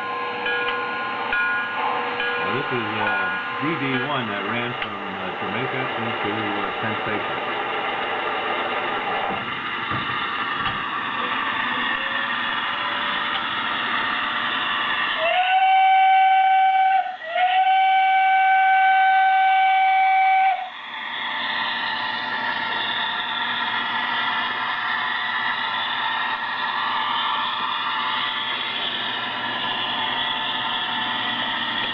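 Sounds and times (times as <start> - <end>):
model train running on track: 0.0 - 31.9
train whistle blasts: 15.1 - 20.7.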